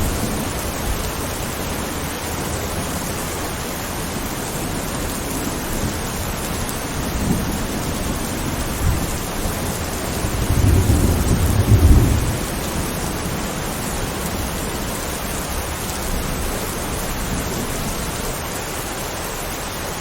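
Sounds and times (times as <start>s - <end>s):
steady rain: 0.0s - 20.0s
distant thunder rumbling: 4.6s - 18.3s.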